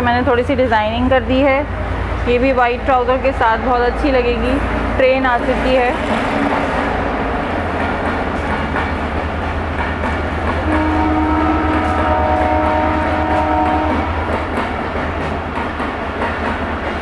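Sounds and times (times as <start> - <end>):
train rumbling past: 0.0 - 17.0
train horn long note: 10.6 - 14.3.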